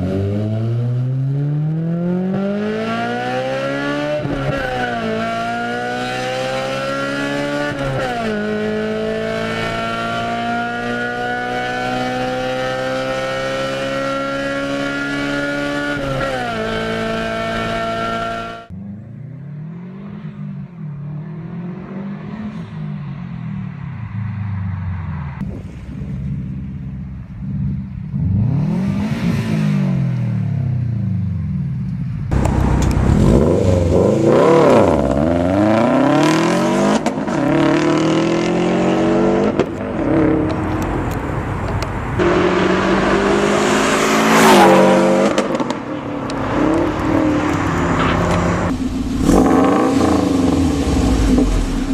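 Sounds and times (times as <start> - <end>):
car engine revving: 0.0 - 30.8, 32.2 - 51.9.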